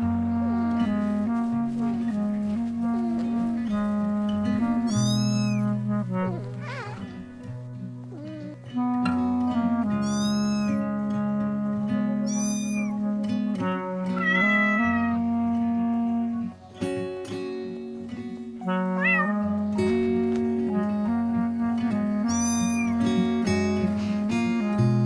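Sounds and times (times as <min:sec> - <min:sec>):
plucked background music: 0:00.0 - 0:25.0
high-pitched cat meows: 0:04.9 - 0:05.7, 0:06.3 - 0:07.2, 0:10.0 - 0:10.8, 0:12.3 - 0:12.9, 0:14.2 - 0:15.2, 0:19.0 - 0:19.4, 0:22.3 - 0:23.0.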